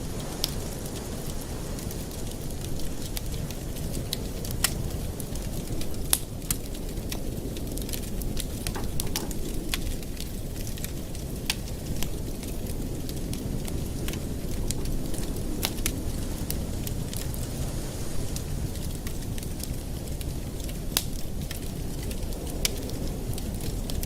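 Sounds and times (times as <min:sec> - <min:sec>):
low fire rumble: 0:00.0 - 0:24.0
wood fire crackling and popping: 0:00.0 - 0:24.0.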